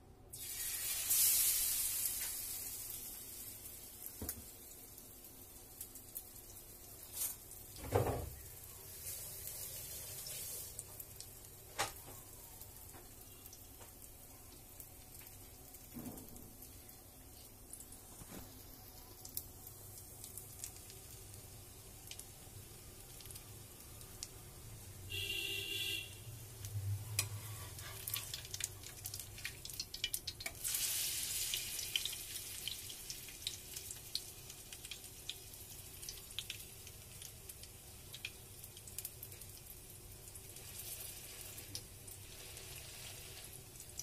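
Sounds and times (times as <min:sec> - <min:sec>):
bread sizzling in oil: 0:00.3 - 0:44.0
metal spatula moving in pan: 0:27.1 - 0:28.4.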